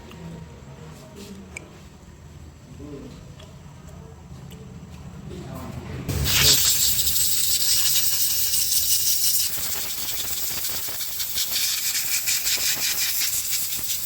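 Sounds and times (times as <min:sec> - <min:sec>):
hissing jet of air: 0:06.1 - 0:14.0.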